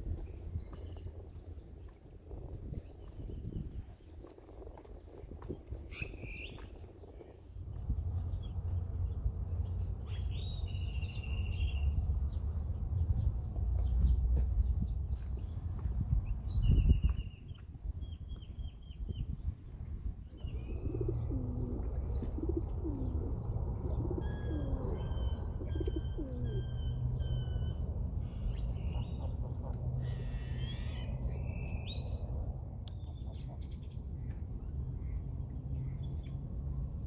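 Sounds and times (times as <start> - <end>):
steady low rumble: 0.0 - 37.0
birds chirping: 20.3 - 32.3
repeated bird call: 24.2 - 29.0
lower curving bird calls: 30.0 - 32.2.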